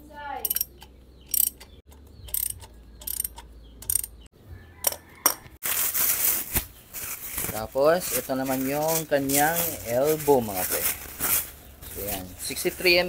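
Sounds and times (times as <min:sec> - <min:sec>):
hand tool clicking: 0:00.4 - 0:05.4.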